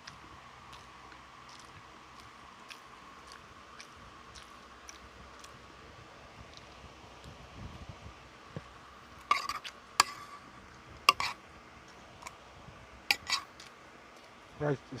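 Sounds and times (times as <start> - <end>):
utensils clinking against plate: 13.1 - 13.5.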